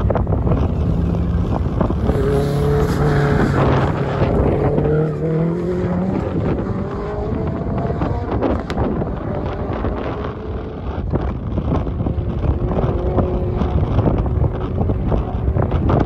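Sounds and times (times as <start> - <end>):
car engine accelerating: 0.0 - 16.0
wind buffeting microphone: 0.0 - 16.0.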